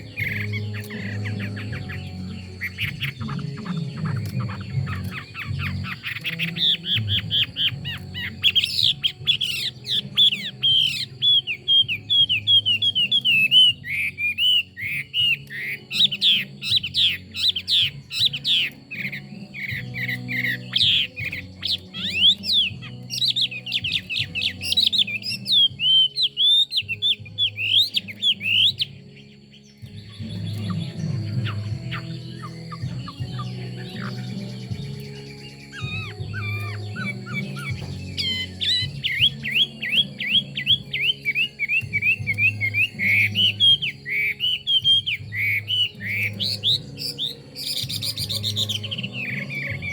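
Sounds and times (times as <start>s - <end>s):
bird singing whistled phrases: 0.0s - 49.9s.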